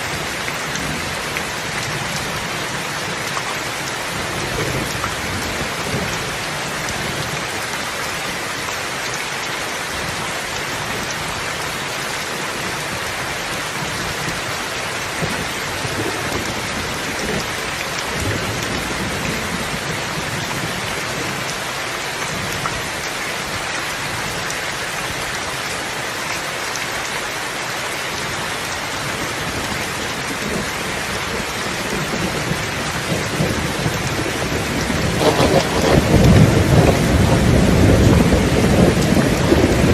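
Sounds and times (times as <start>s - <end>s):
heavy rain: 0.0s - 39.9s
distant thunder rumbling: 31.3s - 39.9s.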